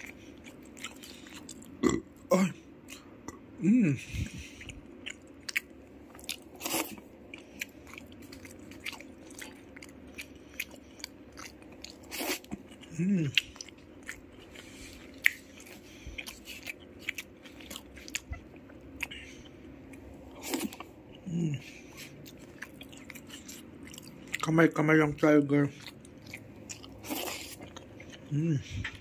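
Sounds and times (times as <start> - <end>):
crunchy food chewing: 0.0 - 1.9, 4.5 - 21.2, 22.0 - 24.5, 25.7 - 29.0
person humming: 3.6 - 4.4, 12.9 - 13.4, 21.2 - 21.6, 28.3 - 29.0.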